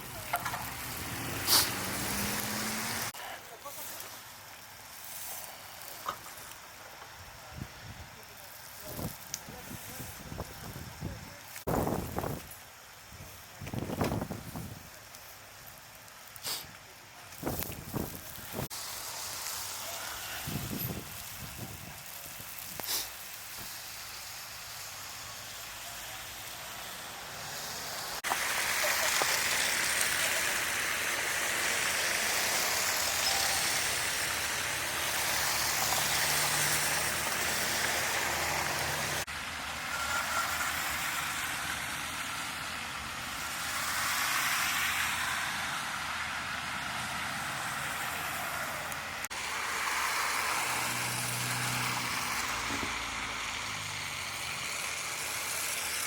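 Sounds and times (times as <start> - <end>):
tyres hissing on slush: 0.0 - 56.0.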